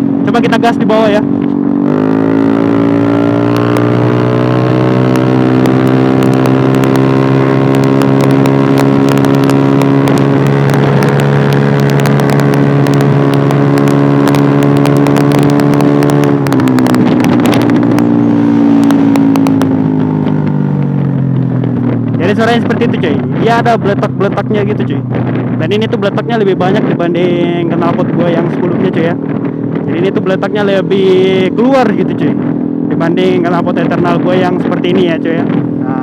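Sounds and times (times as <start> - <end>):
scooter engine revving: 0.0 - 22.3
exhaust crackling and popping: 0.0 - 36.0.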